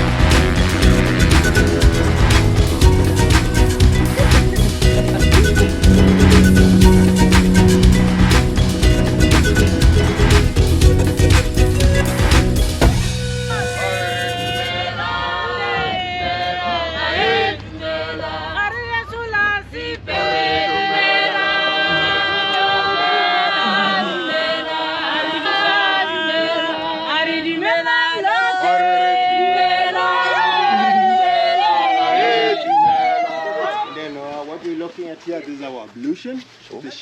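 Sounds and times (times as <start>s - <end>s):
voices singing unaccompanied: 0.0s - 33.4s
low rumble: 1.9s - 13.5s.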